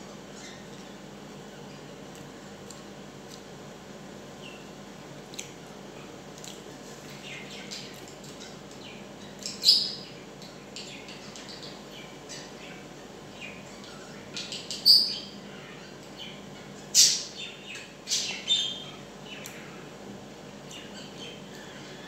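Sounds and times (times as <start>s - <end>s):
faint steady hum: 0.0s - 22.0s
bird chirping: 7.2s - 15.4s, 16.1s - 19.5s.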